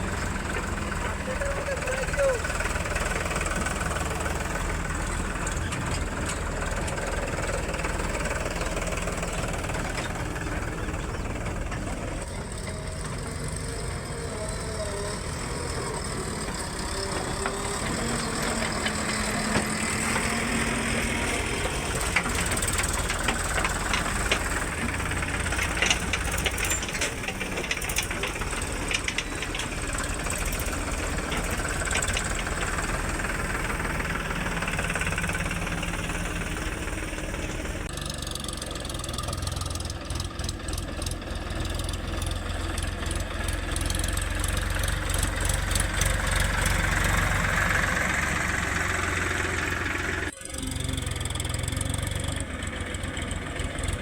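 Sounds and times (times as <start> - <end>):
heavy vehicle engine running: 0.0 - 54.0
short clicks and rattles: 16.5 - 33.7.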